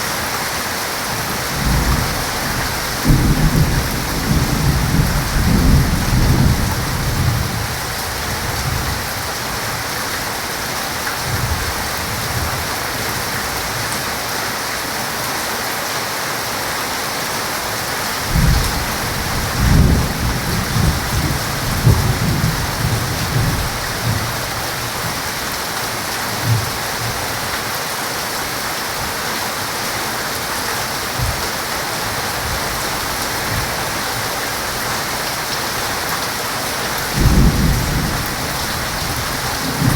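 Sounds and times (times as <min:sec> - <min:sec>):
heavy rain hissing: 0:00.0 - 0:39.9
rolling thunder: 0:01.5 - 0:07.8, 0:18.2 - 0:25.0, 0:37.1 - 0:39.9
low thunder thumps: 0:18.3 - 0:24.3.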